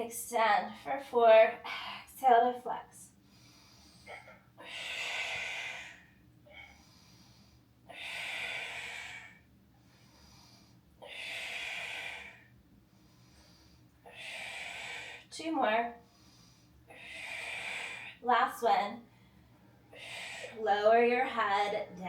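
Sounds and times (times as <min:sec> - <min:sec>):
woman breathing forcefully: 0:03.1 - 0:15.4, 0:16.0 - 0:18.3, 0:19.0 - 0:20.6.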